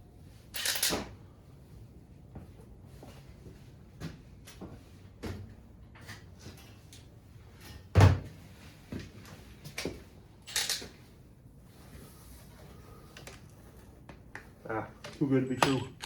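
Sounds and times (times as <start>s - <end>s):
tools and engine parts clicking: 0.6s - 1.1s.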